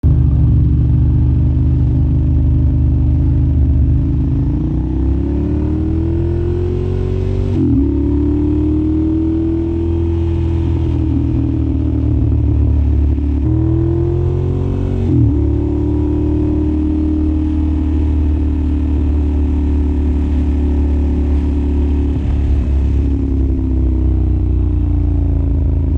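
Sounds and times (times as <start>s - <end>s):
motorcycle engine revving: 0.0s - 25.9s.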